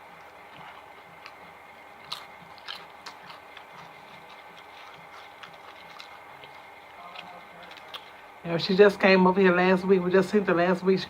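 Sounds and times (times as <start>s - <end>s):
chewing food: 0.0s - 8.4s.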